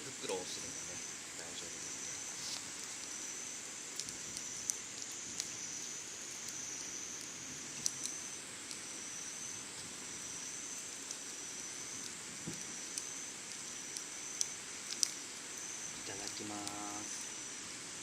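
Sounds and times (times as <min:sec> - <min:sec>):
insects droning: 0:00.0 - 0:18.0
thin insect tone: 0:00.0 - 0:18.0
sharp clicks: 0:03.9 - 0:05.7, 0:06.4 - 0:08.9, 0:10.4 - 0:17.3.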